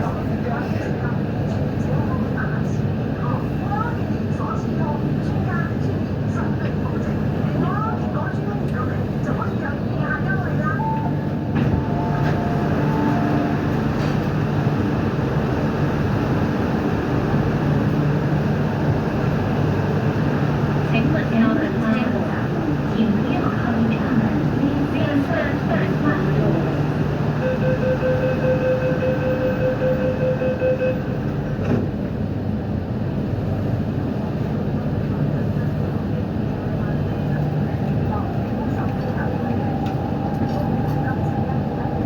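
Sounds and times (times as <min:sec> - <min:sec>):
train wheels rumbling on track: 0:00.0 - 0:42.0
train whine: 0:09.7 - 0:35.2, 0:35.9 - 0:42.0.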